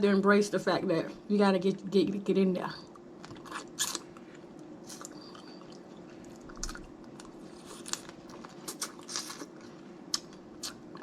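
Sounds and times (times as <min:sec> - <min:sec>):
faint steady hum: 0:00.0 - 0:11.0
wet chewing and cracking: 0:02.9 - 0:11.0.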